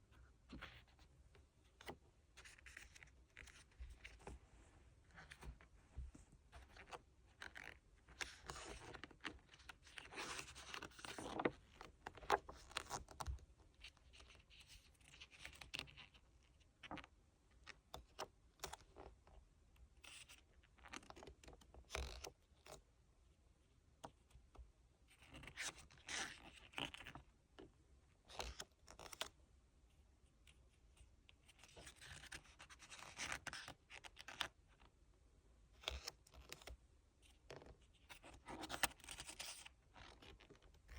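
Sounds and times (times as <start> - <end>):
paper rustling: 8.2 - 13.1.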